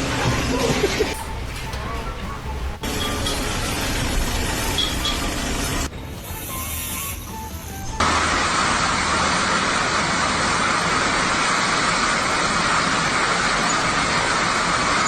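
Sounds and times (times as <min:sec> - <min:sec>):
vehicle engine running: 0:07.8 - 0:15.0.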